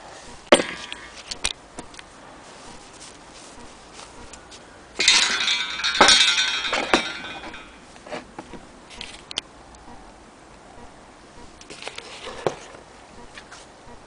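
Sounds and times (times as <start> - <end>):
metal clinking and ringing: 5.0 - 7.9.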